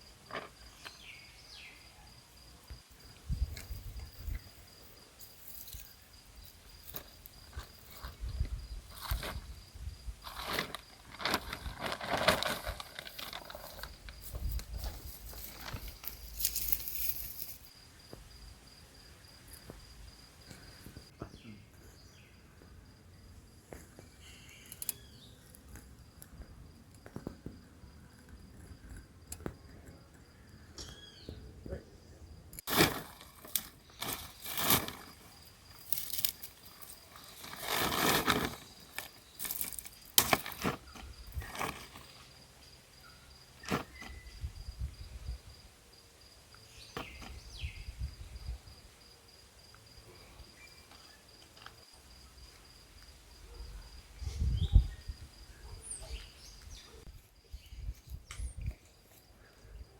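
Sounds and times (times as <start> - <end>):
insects chirping: 0.0 - 59.9
sharp cracks knocks and rustles: 37.8 - 42.0.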